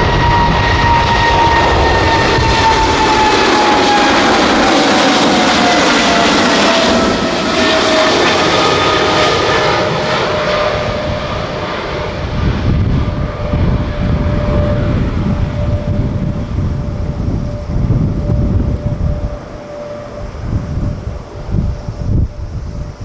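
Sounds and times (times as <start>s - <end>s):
jet engine roar and whine: 0.0s - 23.0s
deep uneven rumble: 12.1s - 19.5s.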